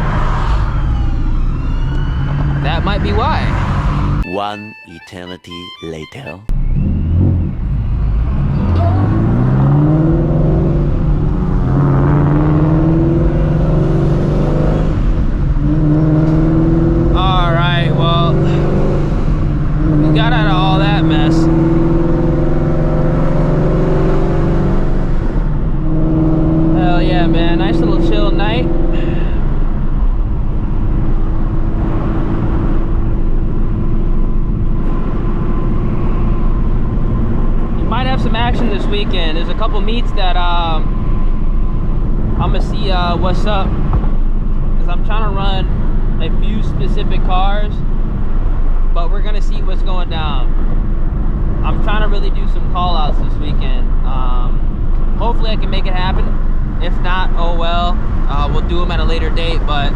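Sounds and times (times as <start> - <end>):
car engine accelerating: 0.0 - 4.2, 6.5 - 59.9
road noise: 0.0 - 59.9.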